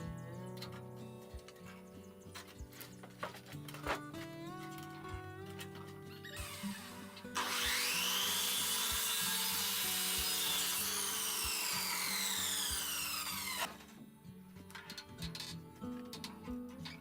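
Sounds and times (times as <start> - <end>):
soft background music with beat: 0.0 - 17.0
power tool cutting wood: 6.1 - 13.8.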